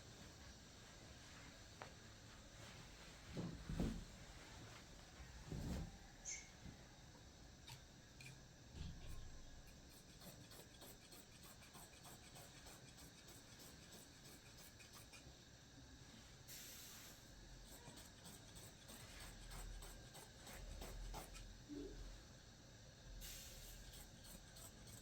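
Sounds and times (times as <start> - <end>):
scratching and rubbing on surface: 9.0 - 15.3, 17.6 - 21.5, 23.7 - 25.0
brief hiss: 16.5 - 17.2.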